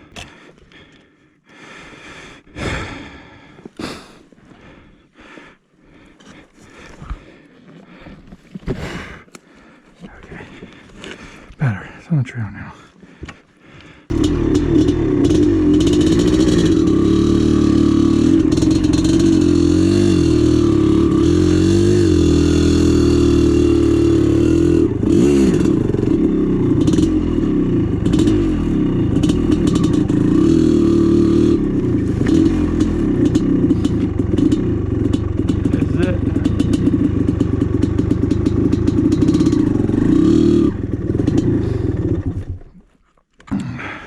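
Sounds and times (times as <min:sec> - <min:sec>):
dirt bike engine revving: 0:14.1 - 0:42.6.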